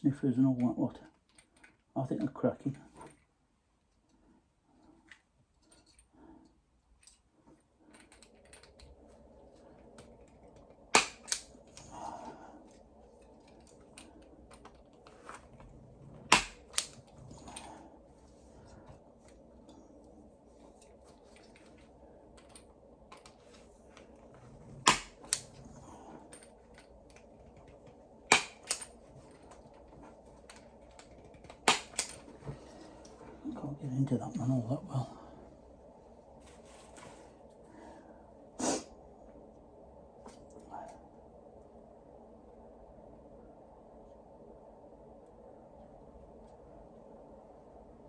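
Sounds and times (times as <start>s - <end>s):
wires being handled: 2.9s - 33.5s
punch-down tool snapping: 11.0s - 11.9s, 16.3s - 17.0s, 24.9s - 25.5s, 28.3s - 28.9s, 31.4s - 32.2s.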